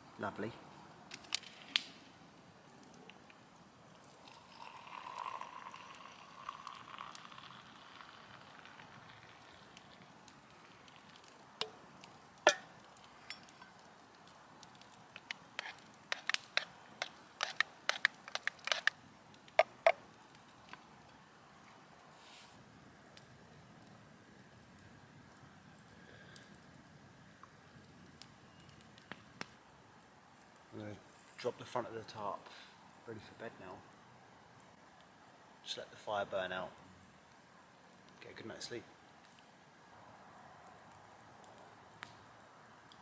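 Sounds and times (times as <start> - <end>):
campfire crackling: 0.0 - 43.0
fire pops and snaps: 0.7 - 21.8, 23.0 - 26.8, 27.4 - 29.7, 39.1 - 39.6, 40.6 - 43.0.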